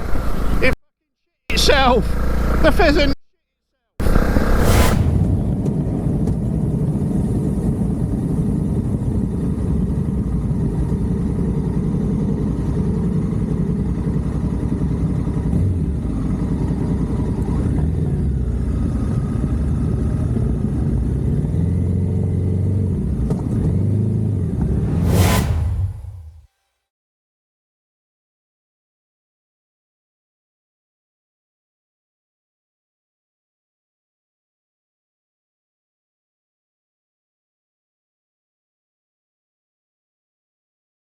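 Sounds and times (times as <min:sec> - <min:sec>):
short loud burst of noise: 0:04.0 - 0:05.8, 0:24.8 - 0:26.4.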